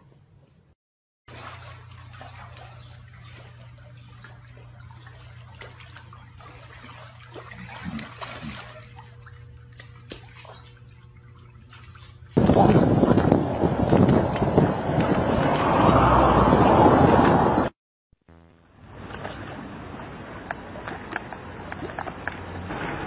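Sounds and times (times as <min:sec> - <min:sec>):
water drips and trickles: 0:01.3 - 0:17.4
pool water lapping and splashing: 0:01.3 - 0:17.7, 0:19.0 - 0:23.0
short low sounds: 0:15.6 - 0:18.9
steady low hum: 0:18.3 - 0:19.1.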